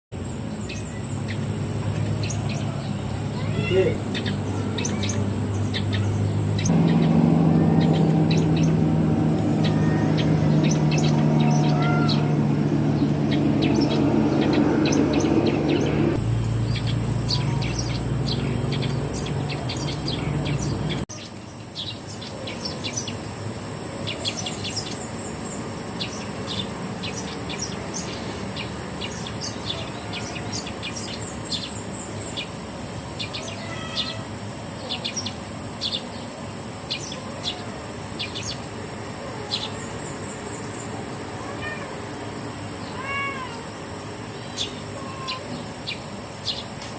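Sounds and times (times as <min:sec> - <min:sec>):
small bird chirping: 0:00.2 - 0:23.3, 0:24.0 - 0:46.9
high-pitched insect trill: 0:00.2 - 0:46.9
low hum: 0:05.3 - 0:21.0.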